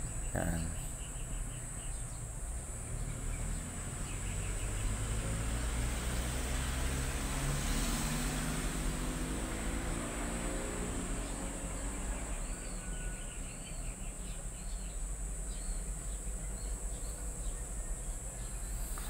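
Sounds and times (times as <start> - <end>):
bird chirping: 0.0 - 6.6, 11.2 - 19.0
high insect drone: 0.0 - 19.0.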